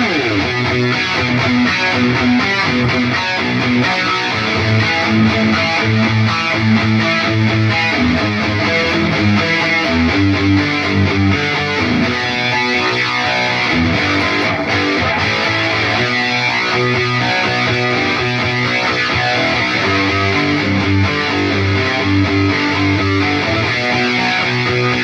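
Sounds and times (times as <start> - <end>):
distorted electric guitar noodling: 0.0 - 25.0.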